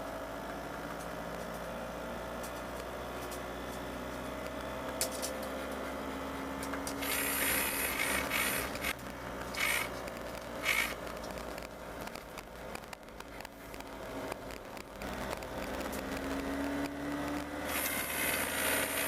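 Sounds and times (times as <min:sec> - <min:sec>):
vehicle engine hum from cab: 0:00.0 - 0:19.0
hissing and rattling: 0:07.0 - 0:13.8.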